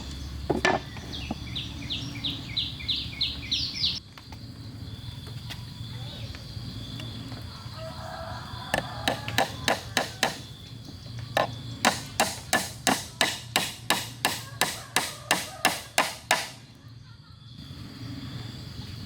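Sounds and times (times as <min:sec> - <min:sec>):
hammer striking wood: 0:09.0 - 0:10.5, 0:11.4 - 0:16.6.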